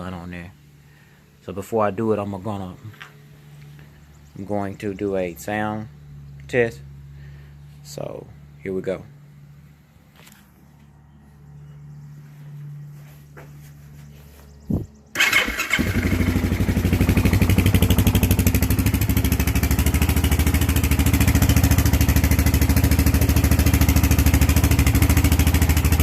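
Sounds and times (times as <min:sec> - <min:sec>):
atv engine starting and idling: 0:15.1 - 0:26.0.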